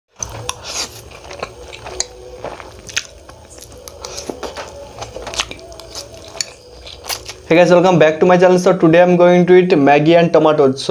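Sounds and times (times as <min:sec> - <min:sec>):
person chewing food: 0:00.1 - 0:07.5.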